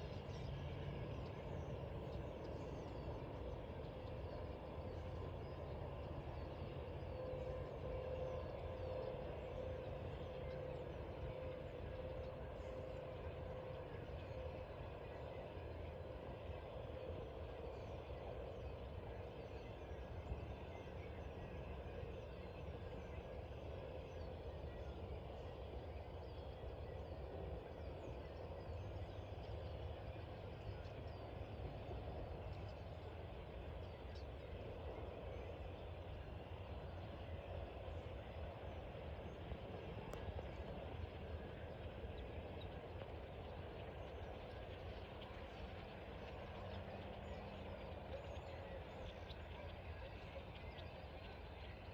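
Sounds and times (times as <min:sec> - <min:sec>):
low background rumble: 0:21.6 - 0:51.9.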